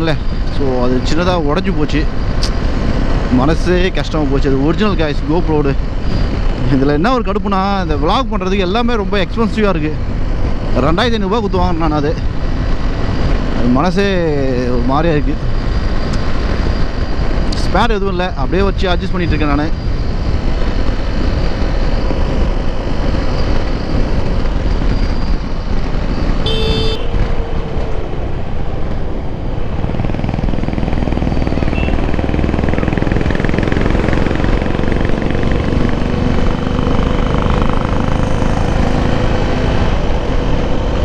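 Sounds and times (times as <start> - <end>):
motorcycle engine and road noise: 0.0 - 41.0
vehicle horn toot: 26.4 - 27.3.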